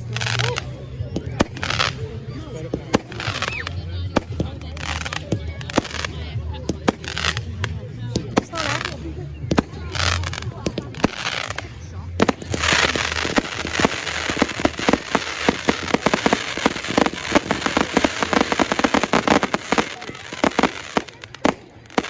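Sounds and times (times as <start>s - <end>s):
fireworks crackling and popping: 0.0s - 22.0s.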